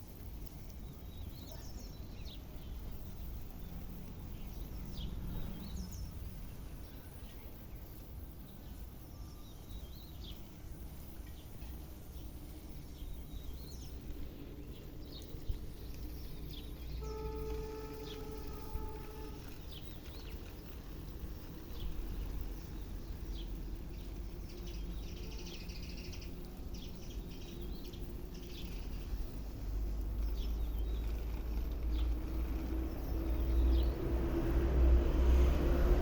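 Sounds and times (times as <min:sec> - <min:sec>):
birds chirping: 0:13.0 - 0:34.3
vehicle approaching: 0:26.1 - 0:36.0.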